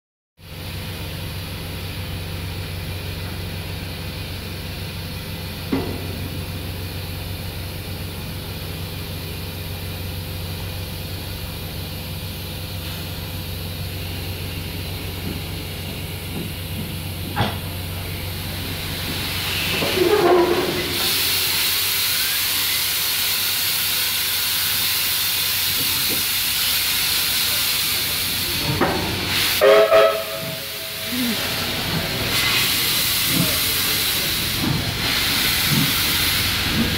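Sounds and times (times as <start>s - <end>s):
steam locomotive humming: 0.5s - 36.9s
steam hissing: 12.7s - 36.9s.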